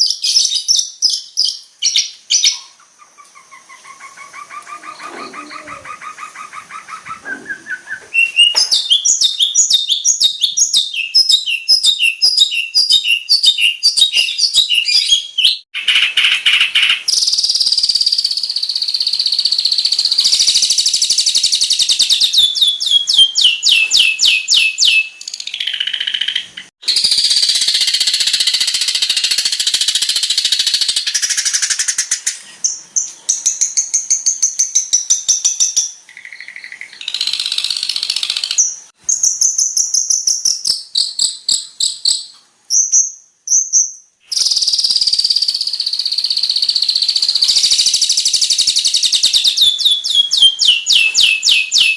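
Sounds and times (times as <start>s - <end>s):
shrike singing: 3.7s - 15.7s.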